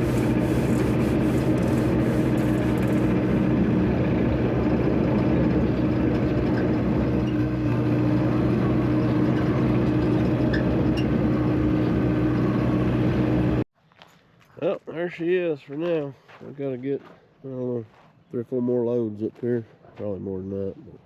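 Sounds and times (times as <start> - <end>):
heavy vehicle engine humming: 0.0 - 13.6.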